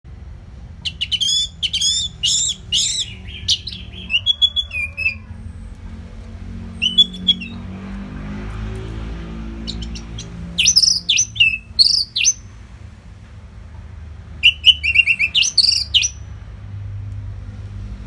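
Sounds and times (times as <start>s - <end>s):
thrush singing: 0.9s - 5.3s, 6.7s - 7.8s, 9.2s - 12.5s, 14.4s - 16.2s.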